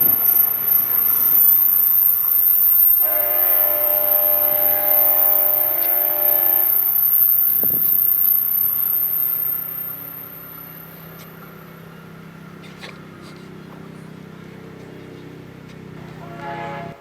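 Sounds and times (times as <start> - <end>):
train noise: 0.0 - 17.0
locomotive air horn chord: 2.0 - 10.6, 16.1 - 17.0.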